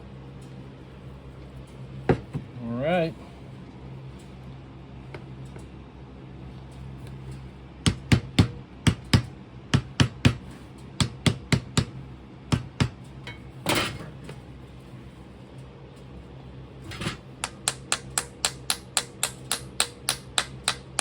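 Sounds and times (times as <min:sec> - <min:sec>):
sharp tapping on a mould: 0:07.9 - 0:10.4, 0:11.0 - 0:13.0, 0:17.4 - 0:21.0.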